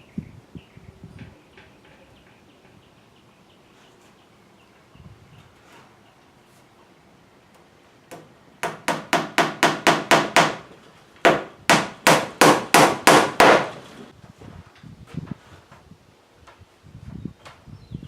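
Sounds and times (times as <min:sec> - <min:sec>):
hammer driving nails into wood: 0:08.1 - 0:14.1.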